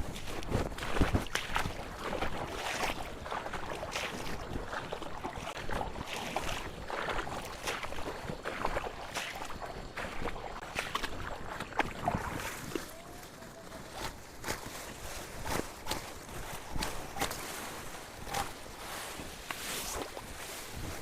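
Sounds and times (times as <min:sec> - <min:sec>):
dry grass rustling: 0:11.9 - 0:21.0.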